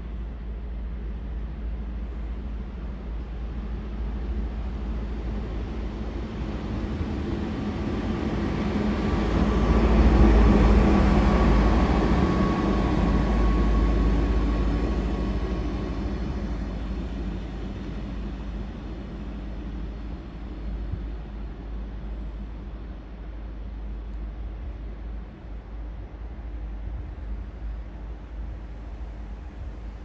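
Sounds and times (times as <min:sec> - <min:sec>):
faint steady whine: 0:00.0 - 0:30.0
train passing: 0:02.5 - 0:25.3.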